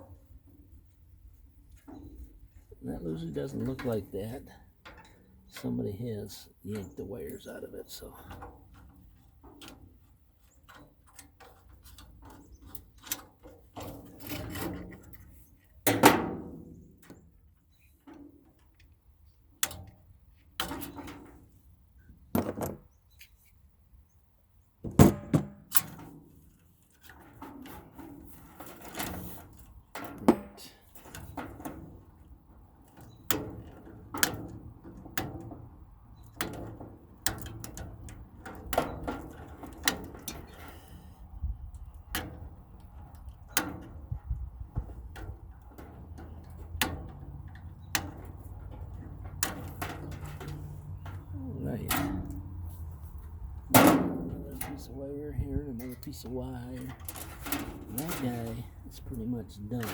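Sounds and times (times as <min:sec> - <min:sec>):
sheet metal knocks and clanks: 0:24.8 - 0:26.2, 0:53.7 - 0:54.9
loud metal bangs: 0:53.6 - 0:58.7.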